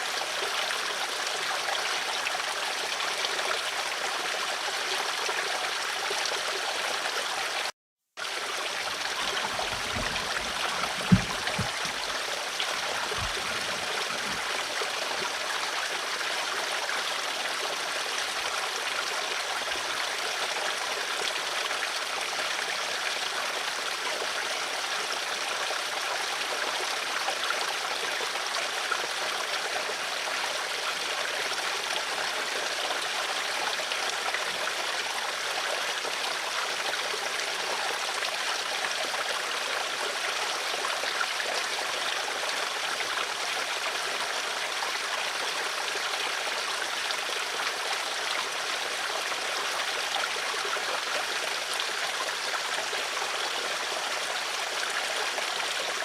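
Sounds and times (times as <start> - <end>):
stream water rushing: 0.0 - 56.0
low thumps: 9.0 - 12.1, 12.7 - 14.4.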